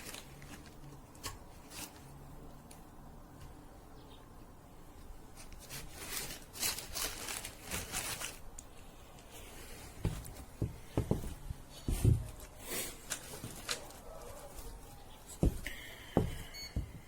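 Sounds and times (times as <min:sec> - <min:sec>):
scraping and rustling: 0:00.0 - 0:02.4, 0:05.3 - 0:15.6.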